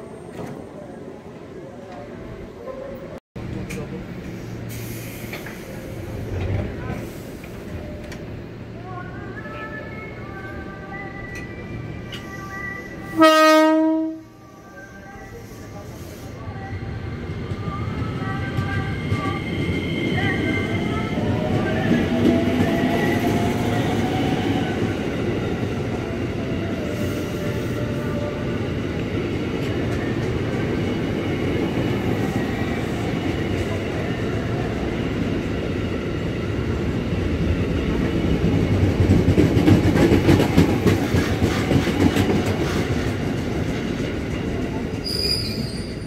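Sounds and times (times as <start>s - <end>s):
train wheels rumbling on rail: 3.4s - 8.4s, 15.4s - 46.0s.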